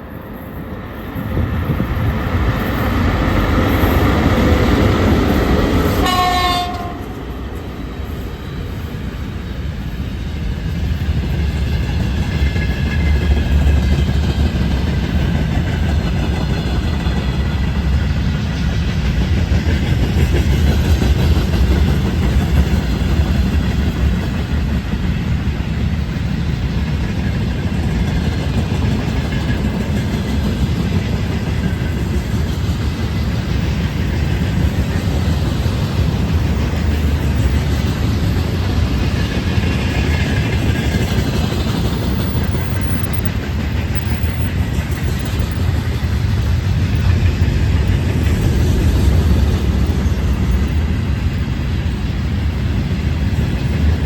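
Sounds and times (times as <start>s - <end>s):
train wheels rumbling on rails: 0.0s - 54.0s
locomotive air horn: 6.0s - 7.1s.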